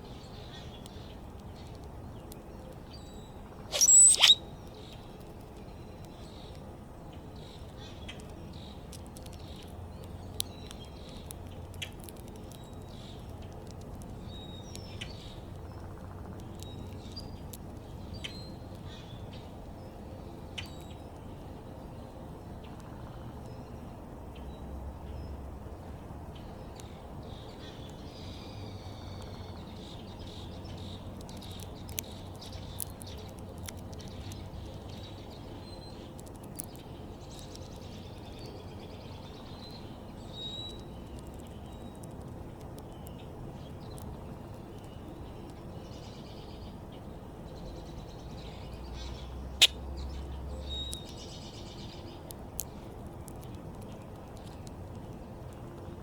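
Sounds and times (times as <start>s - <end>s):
small birds chirping: 0.0s - 25.4s, 26.3s - 56.0s
sharp clicks: 3.7s - 4.4s.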